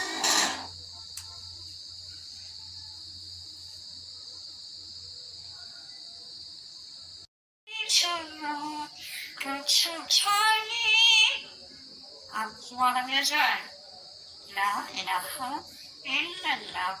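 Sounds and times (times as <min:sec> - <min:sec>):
short harsh rasp: 0:00.0 - 0:00.7
crickets chirring: 0:00.0 - 0:17.0
faint click: 0:01.2 - 0:01.4.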